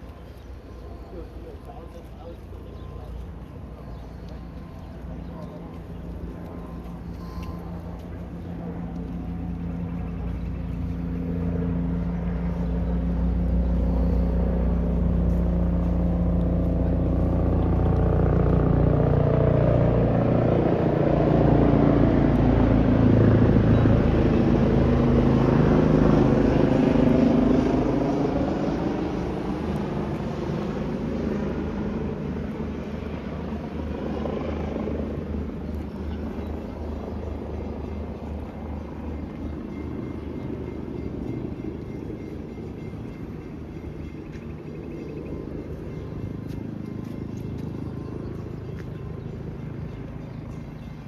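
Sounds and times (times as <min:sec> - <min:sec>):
train passing: 0:00.0 - 0:34.0, 0:34.6 - 0:51.0.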